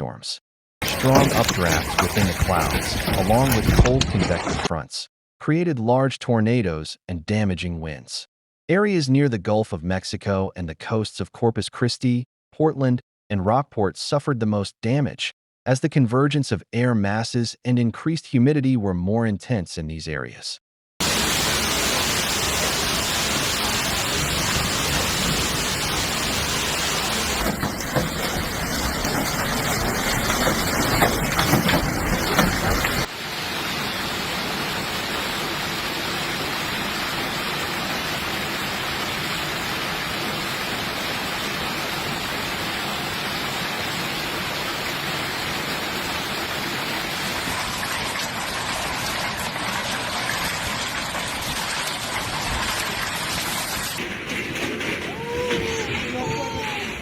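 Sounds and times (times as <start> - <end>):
hail and rain falling: 0.8 - 3.9, 21.0 - 37.9, 51.9 - 57.0
sharp hail hits: 0.8 - 3.9, 21.0 - 33.1, 54.0 - 57.0.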